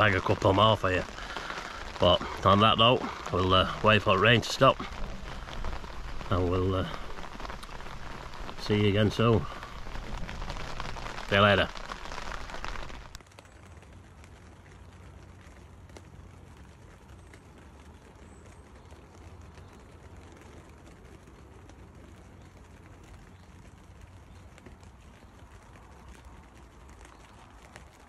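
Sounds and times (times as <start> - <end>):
low steady rumble: 0.0 - 26.9
rain drumming on fabric: 0.0 - 28.0
rain falling on a lake: 0.0 - 28.0.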